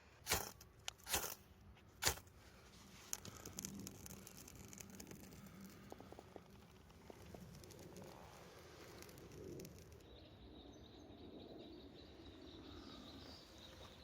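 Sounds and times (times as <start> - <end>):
fire steel rasping scrapes: 0.2 - 1.4
faint crackling and ticking: 2.0 - 10.1.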